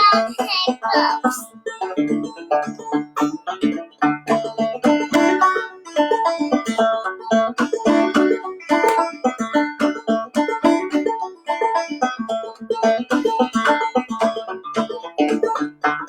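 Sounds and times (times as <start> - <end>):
banjo tune with plucked notes: 0.0 - 16.0.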